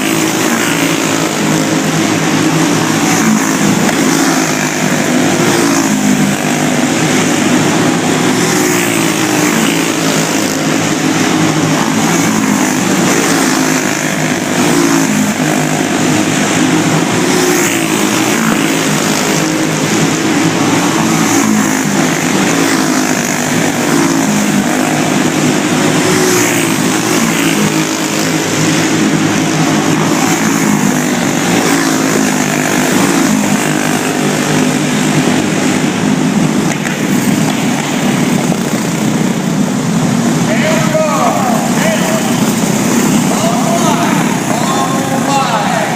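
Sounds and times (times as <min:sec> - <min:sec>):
go-kart engines racing: 0:00.0 - 0:45.9.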